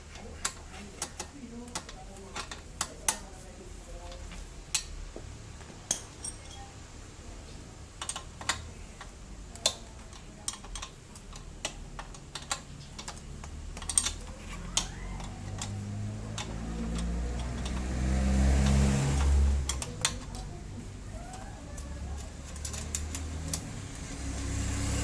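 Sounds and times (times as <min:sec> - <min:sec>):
hand tools clinking on metal: 0:05.9 - 0:06.8, 0:08.0 - 0:20.6, 0:21.2 - 0:24.5.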